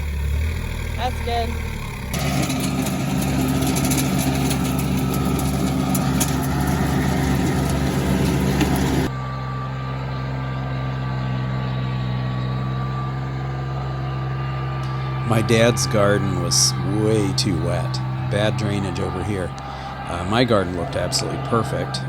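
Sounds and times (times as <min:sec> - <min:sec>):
tractor engine running: 0:00.0 - 0:22.0
rotary tiller clattering: 0:02.1 - 0:09.1.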